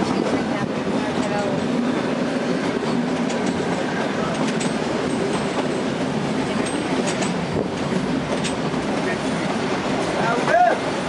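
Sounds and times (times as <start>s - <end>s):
wheels clicking over track: 2.4s - 9.1s.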